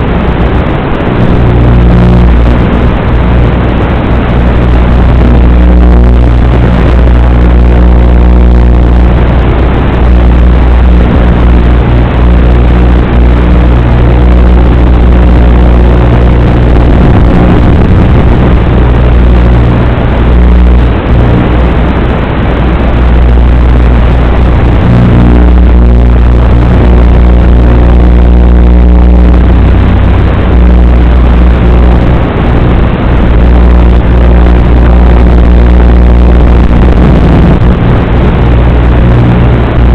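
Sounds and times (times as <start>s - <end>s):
quadcopter motors humming: 1.0s - 39.4s
wind buffeting microphone: 16.0s - 27.3s, 28.7s - 39.9s.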